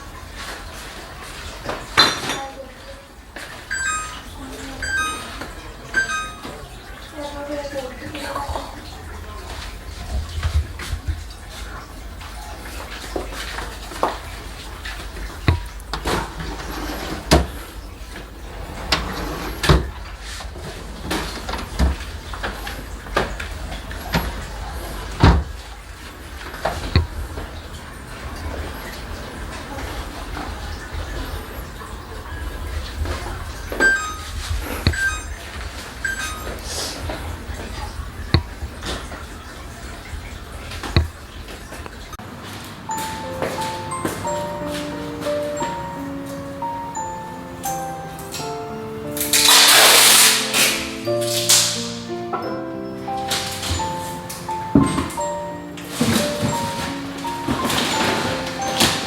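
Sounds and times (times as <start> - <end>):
knocks and clunks: 54.7 - 55.3.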